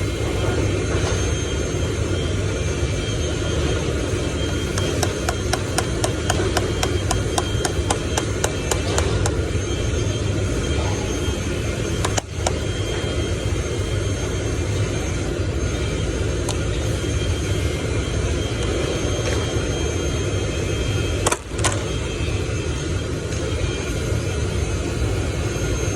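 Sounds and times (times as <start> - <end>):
engine running with low rumble: 0.0 - 25.9
sharp clicks: 4.7 - 9.4, 12.0 - 12.7
fast run of ticks: 4.8 - 9.4.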